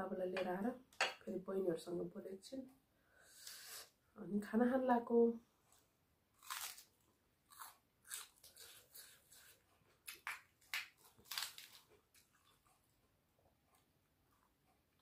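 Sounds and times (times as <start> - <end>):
person chewing with wet smacking: 7.6 - 15.0.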